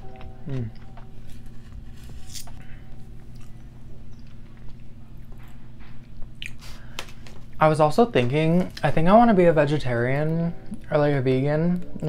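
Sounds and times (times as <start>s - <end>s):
steady low hum: 0.0s - 12.0s
chewing mouth sounds: 6.4s - 6.8s.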